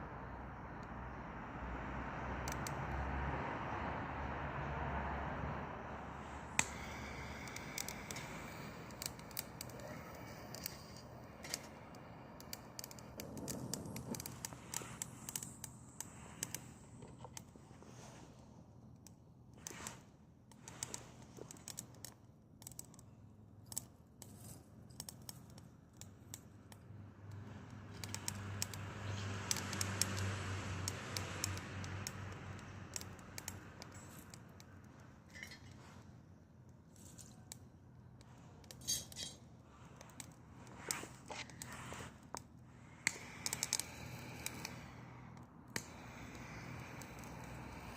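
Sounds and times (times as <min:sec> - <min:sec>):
burning branches crackling and popping: 0:05.9 - 0:18.2, 0:27.3 - 0:36.1, 0:36.8 - 0:47.9.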